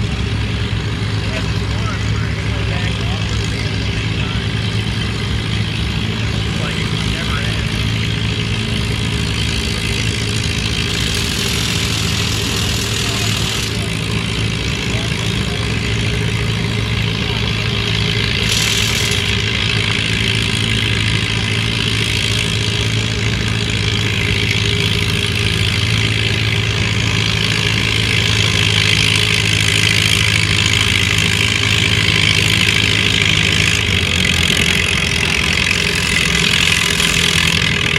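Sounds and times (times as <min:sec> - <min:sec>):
tractor engine running: 0:00.0 - 0:37.9.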